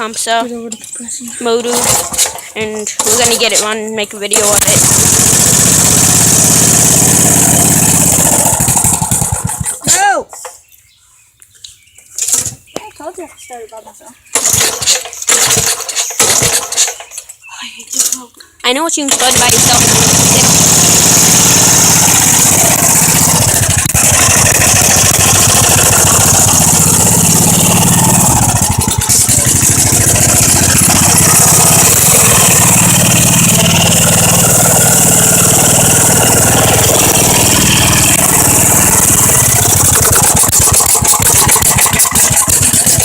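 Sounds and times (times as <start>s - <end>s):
small engine running: 1.6s - 3.6s, 4.3s - 9.8s, 14.3s - 17.2s, 19.1s - 43.0s.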